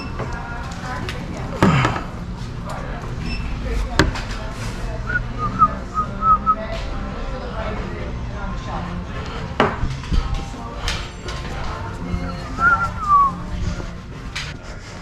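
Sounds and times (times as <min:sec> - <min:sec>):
hum and clatter of busy shop: 0:00.0 - 0:15.0
person whistling a tune: 0:12.3 - 0:13.4.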